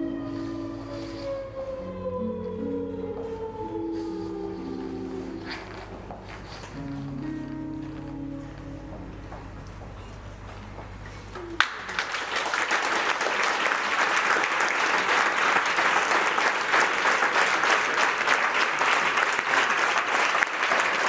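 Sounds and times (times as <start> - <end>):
low held tango note: 0.0 - 10.0
audience applause: 11.4 - 21.0.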